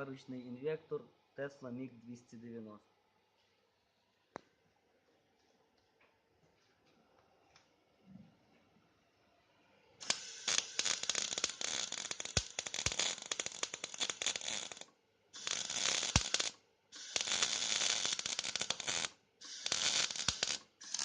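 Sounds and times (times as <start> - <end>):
welding arc crackling: 10.0 - 21.0.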